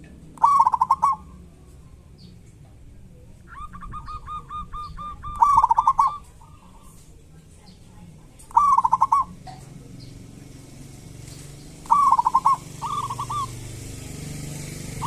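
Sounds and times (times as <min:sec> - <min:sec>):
low steady hum: 0:00.0 - 0:14.2
dove rapid call: 0:00.4 - 0:01.4, 0:03.5 - 0:06.8, 0:08.5 - 0:09.5, 0:11.8 - 0:14.0.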